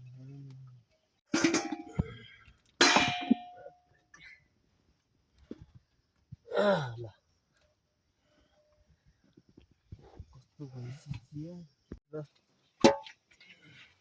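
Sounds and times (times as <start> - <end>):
metal clangs: 1.3 - 2.2, 2.8 - 3.8.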